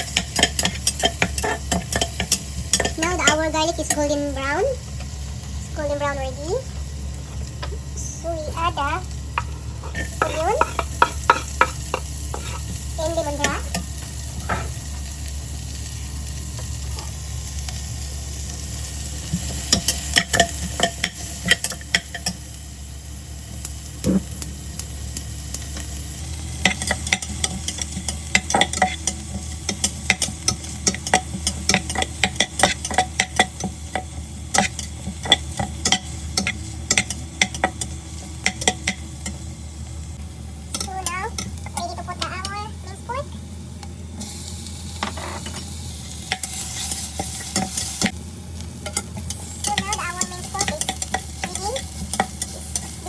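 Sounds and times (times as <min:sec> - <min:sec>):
food sizzling in oil: 0:00.0 - 0:53.0
utensil scraping a pot: 0:09.4 - 0:12.7.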